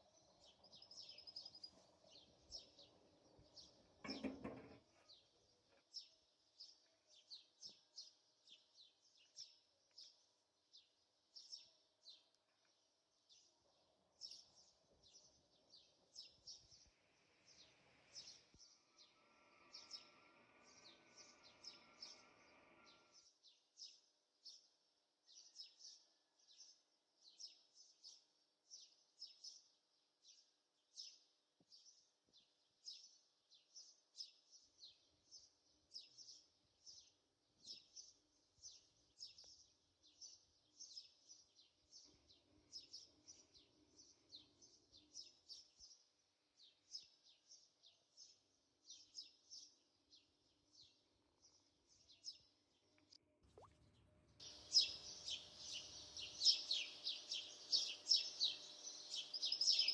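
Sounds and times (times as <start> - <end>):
small bird chirping: 0.0 - 13.6, 14.2 - 24.6, 54.4 - 59.9
low steady hum: 53.4 - 59.9.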